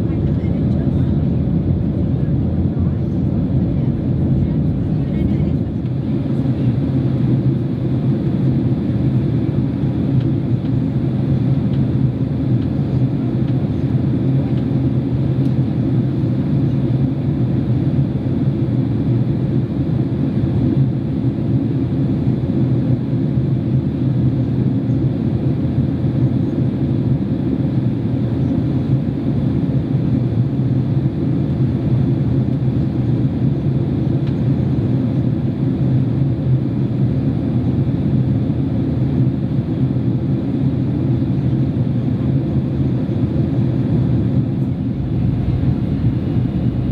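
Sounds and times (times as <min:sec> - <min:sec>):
airliner cabin drone: 0:00.0 - 0:46.9.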